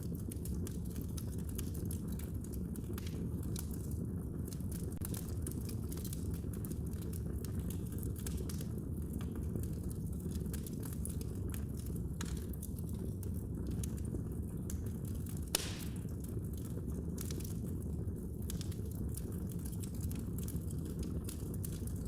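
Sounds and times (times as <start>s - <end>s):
wood fire crackling: 0.0s - 22.0s
loud fire pop: 15.5s - 16.2s.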